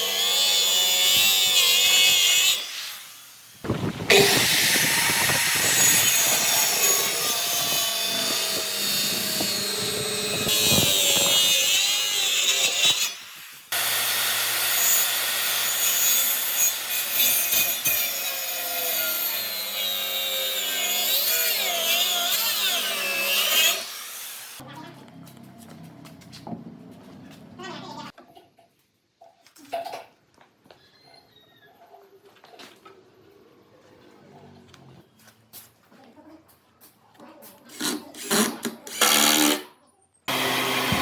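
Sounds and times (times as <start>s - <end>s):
power tool cutting wood: 0.0s - 3.0s, 3.7s - 24.6s, 37.7s - 39.7s, 40.3s - 41.0s.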